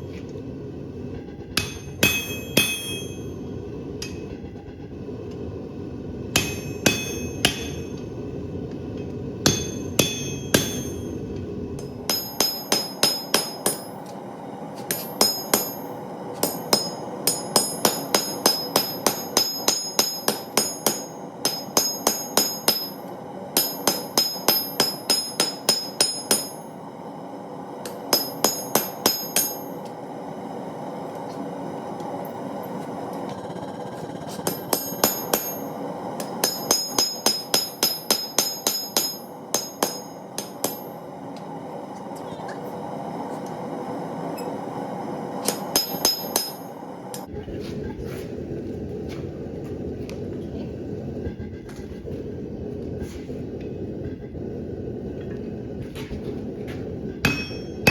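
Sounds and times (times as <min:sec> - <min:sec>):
hammer ringing on anvil: 0:01.6 - 0:03.4, 0:06.4 - 0:08.0, 0:09.4 - 0:11.2, 0:11.8 - 0:14.1, 0:14.9 - 0:23.0, 0:23.6 - 0:26.7, 0:27.8 - 0:29.9, 0:34.4 - 0:41.0, 0:45.4 - 0:47.3, 0:57.2 - 0:57.9.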